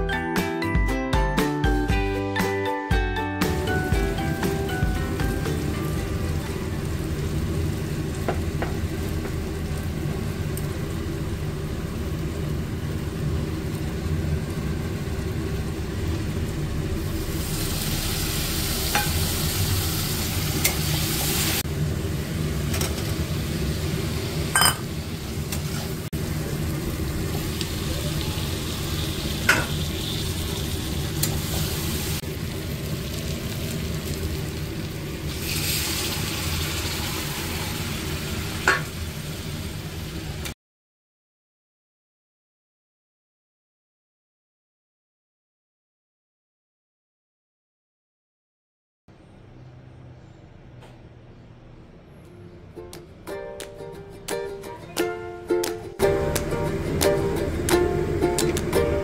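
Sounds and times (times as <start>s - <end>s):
food sizzling in a metal pan: 3.4s - 40.4s
water hissing in hot pan: 17.0s - 21.7s, 23.1s - 40.3s
spatula clinking on pan: 24.6s - 24.8s.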